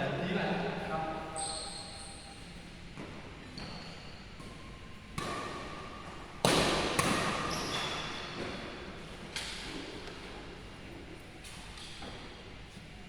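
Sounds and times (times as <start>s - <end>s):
shoes squeaking on court: 1.3s - 4.5s, 7.0s - 8.8s
racket hitting shuttlecock: 5.1s - 10.2s.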